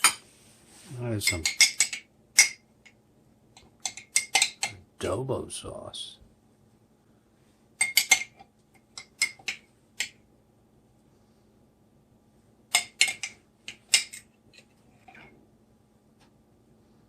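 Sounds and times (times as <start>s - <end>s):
utensil tapping a dish: 3.6s - 4.8s.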